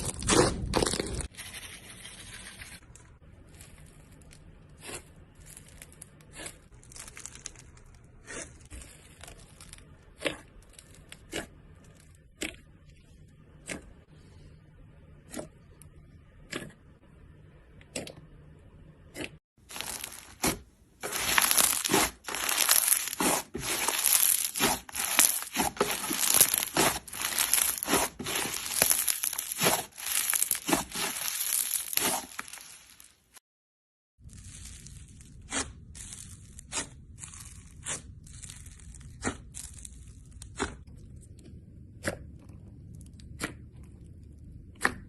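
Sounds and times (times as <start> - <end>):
slime crackling and crunching: 3.4 - 12.2, 19.6 - 33.4, 34.2 - 40.8
slime popping: 19.7 - 33.0.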